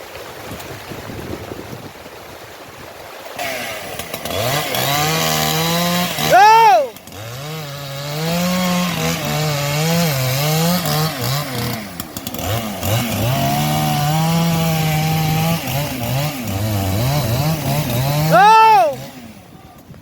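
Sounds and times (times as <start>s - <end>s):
chainsaw cutting wood: 3.3s - 19.9s.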